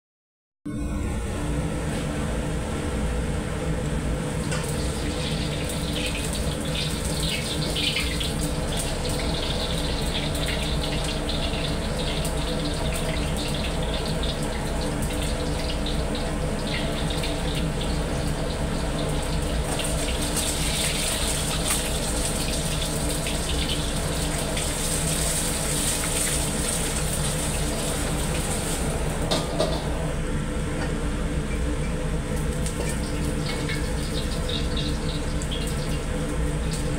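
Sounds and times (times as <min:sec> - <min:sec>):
gas burner hum: 0:00.7 - 0:36.9
egg sizzling in oil: 0:04.4 - 0:29.2, 0:32.6 - 0:36.9.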